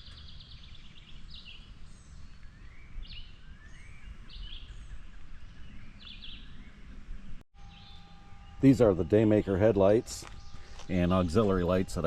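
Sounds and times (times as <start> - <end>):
low outdoor rumble: 0.0 - 12.0
songbird calling with trill: 0.0 - 12.0.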